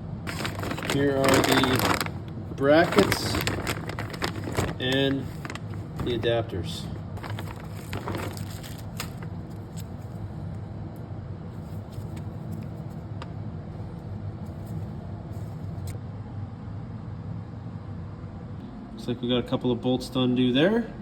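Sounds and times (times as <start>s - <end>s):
steady low hum: 0.0s - 21.0s
packaging clicks and rustles: 0.2s - 6.3s, 7.2s - 10.2s.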